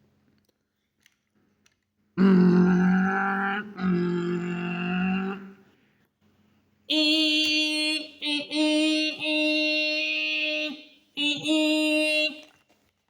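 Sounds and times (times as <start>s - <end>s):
person imitating machine drone: 2.2s - 5.7s, 6.9s - 12.4s.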